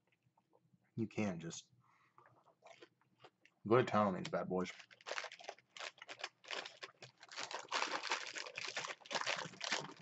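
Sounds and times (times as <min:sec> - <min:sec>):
crunchy chewing: 0:02.6 - 0:03.5, 0:04.7 - 0:10.0.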